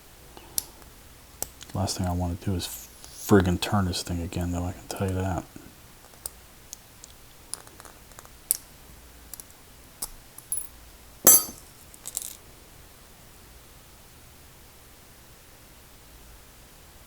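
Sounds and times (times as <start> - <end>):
small metal parts clinking: 10.4 - 10.7, 11.3 - 12.4.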